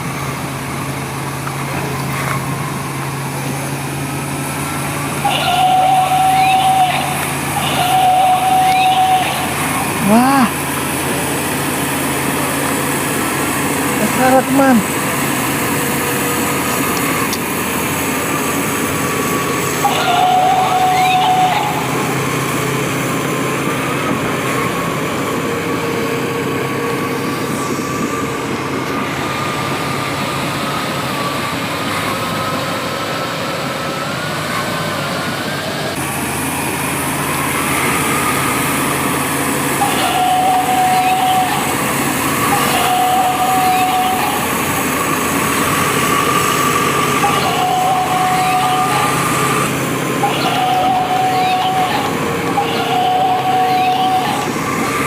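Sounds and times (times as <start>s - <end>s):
toy electric motor whine: 5.3s - 10.6s, 13.9s - 14.8s, 19.7s - 22.2s, 38.3s - 55.0s.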